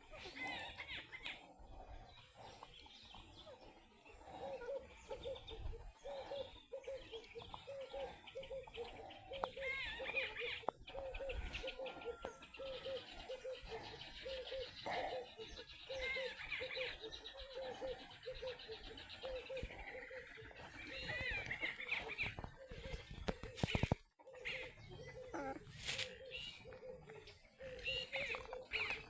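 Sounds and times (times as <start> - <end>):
puppies squeaking and whimpering: 9.5 - 13.6, 19.3 - 29.0.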